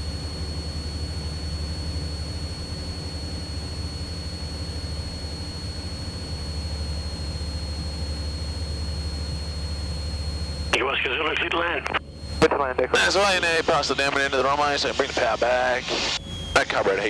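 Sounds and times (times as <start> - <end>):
airplane engine droning: 0.0 - 17.0
high whine: 8.3 - 17.0.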